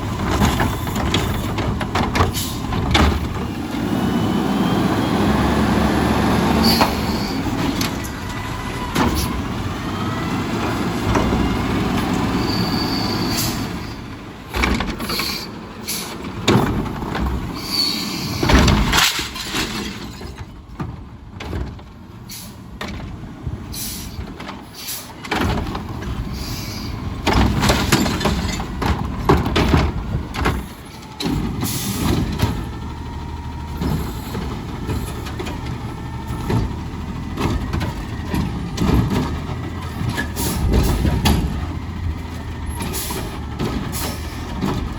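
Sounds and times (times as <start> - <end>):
knocks and clatter: 0.0 - 3.6, 18.4 - 22.0, 25.2 - 26.3, 27.2 - 32.9, 33.6 - 44.9
garbage truck engine running: 0.0 - 44.9.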